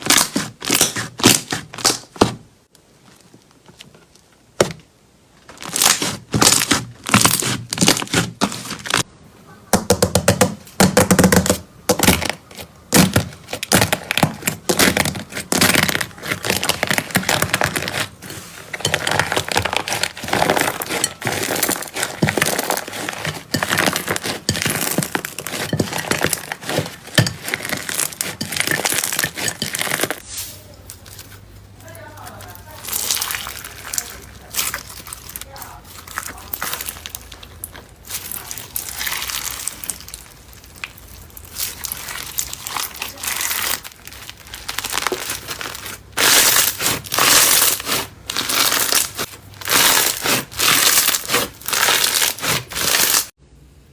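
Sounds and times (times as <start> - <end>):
slime crackling and popping: 0.0 - 3.6, 5.4 - 9.1, 11.1 - 30.2, 30.8 - 53.4.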